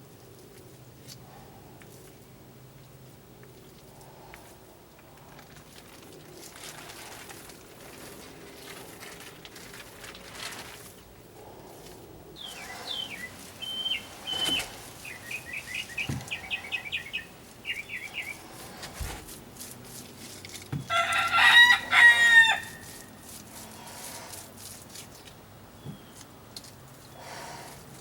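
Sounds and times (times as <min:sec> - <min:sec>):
small birds chirping: 0:11.6 - 0:21.2, 0:22.4 - 0:28.0
rooster crowing: 0:20.8 - 0:23.0.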